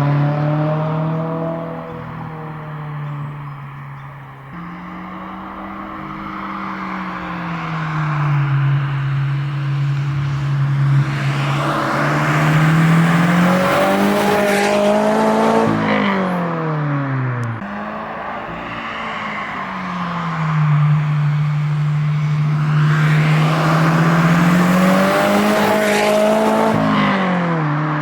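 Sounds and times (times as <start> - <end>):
car engine accelerating: 0.0 - 28.0.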